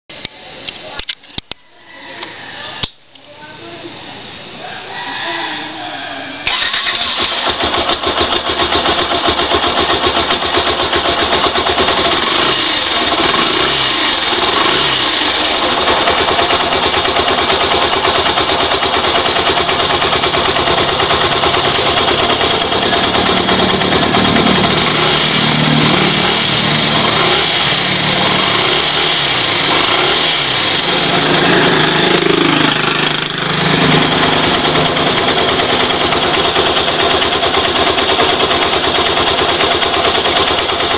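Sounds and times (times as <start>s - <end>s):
motorcycle engine idling: 6.5s - 40.9s.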